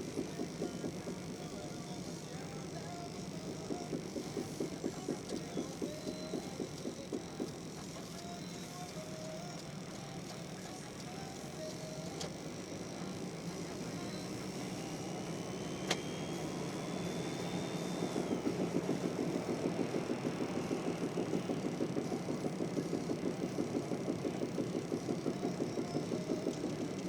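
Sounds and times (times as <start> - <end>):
repeated knocking from car front end: 18.1 - 27.0.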